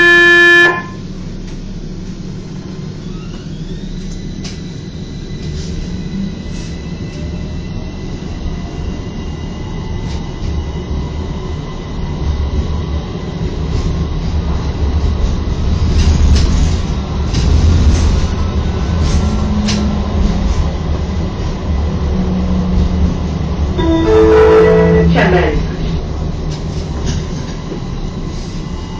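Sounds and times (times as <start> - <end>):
tram rumbling along rails: 0.0 - 28.9.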